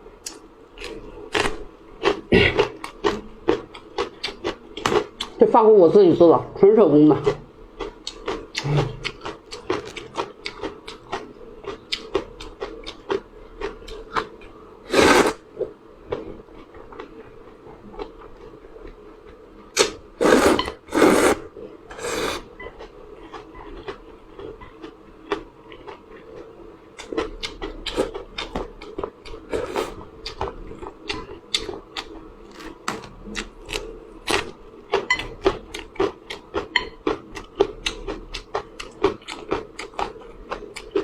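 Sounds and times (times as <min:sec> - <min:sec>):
slurping noodles: 0:14.9 - 0:15.4, 0:19.8 - 0:22.5, 0:29.5 - 0:30.0.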